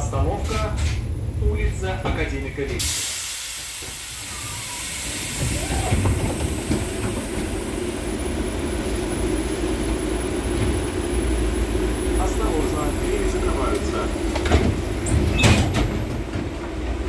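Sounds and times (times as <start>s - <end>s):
tram equipment humming and rumbling: 0.0s - 17.0s
hiss of released air: 2.8s - 7.8s.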